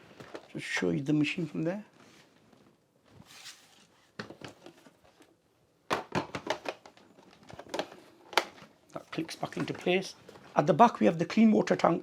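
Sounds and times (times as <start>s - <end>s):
plastic parts knocking: 5.9s - 8.6s.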